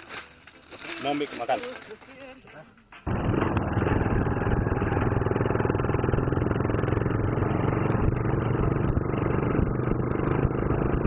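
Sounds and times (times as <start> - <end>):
motorcycle engine running: 3.1 - 11.0.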